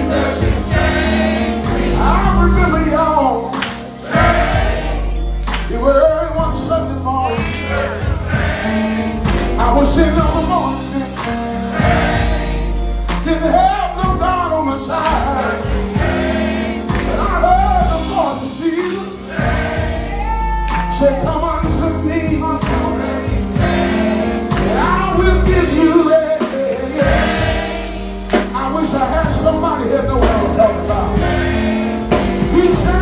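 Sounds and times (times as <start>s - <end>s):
band with bass line: 0.0s - 33.0s
gospel choir singing: 0.0s - 33.0s.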